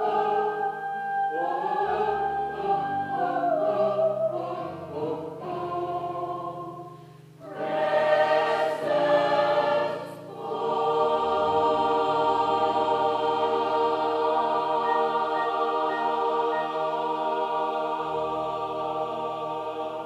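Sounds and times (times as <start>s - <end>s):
gospel choir singing: 0.0s - 20.0s.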